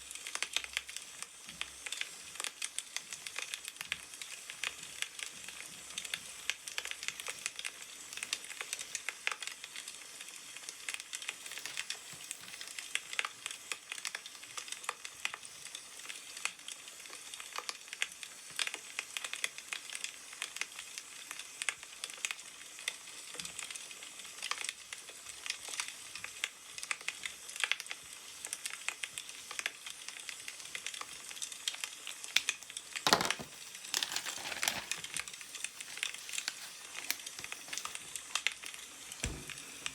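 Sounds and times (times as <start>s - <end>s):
wood fire crackling: 0.3s - 15.8s, 24.4s - 39.9s.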